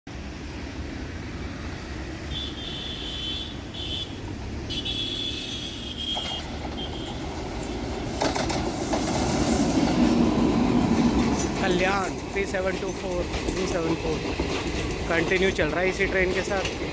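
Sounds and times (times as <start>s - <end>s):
train rumbling along track: 0.1s - 16.9s.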